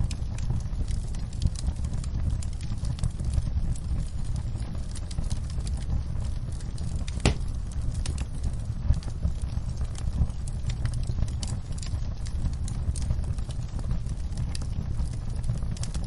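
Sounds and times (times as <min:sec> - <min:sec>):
wood fire crackling: 0:00.0 - 0:16.0
sharp pop from fire: 0:07.0 - 0:08.2.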